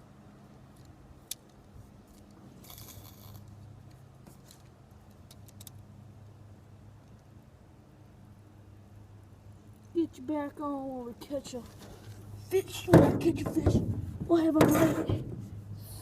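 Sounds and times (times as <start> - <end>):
low steady hum: 0.0 - 16.0
handling noises: 11.4 - 15.8.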